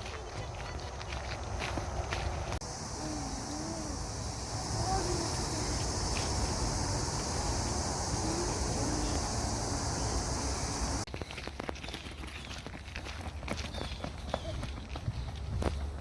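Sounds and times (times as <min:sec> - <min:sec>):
low outdoor rumble: 0:00.4 - 0:11.1
insects buzzing: 0:02.3 - 0:11.1.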